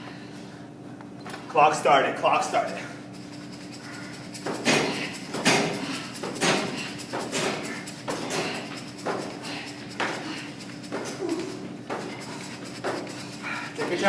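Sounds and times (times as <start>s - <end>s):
punches hitting boxing mitts: 4.4s - 9.4s.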